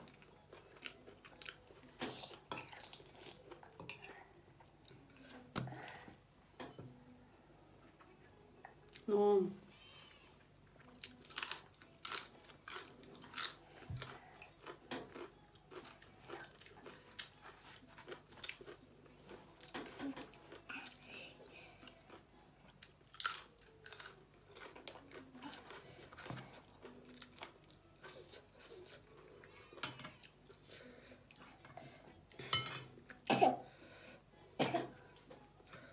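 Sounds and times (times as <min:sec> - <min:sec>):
vegetable crunching: 0:10.9 - 0:20.7, 0:22.8 - 0:29.2.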